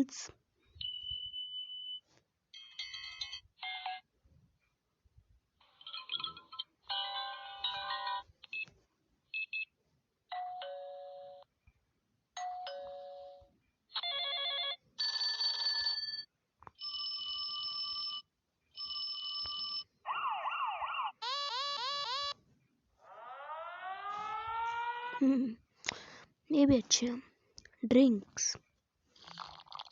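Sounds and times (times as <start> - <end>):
warbling alarm tone: 20.1 - 22.4, 23.0 - 25.3
rising siren-like sweeps: 23.0 - 25.3
steady electronic tones: 23.0 - 25.4.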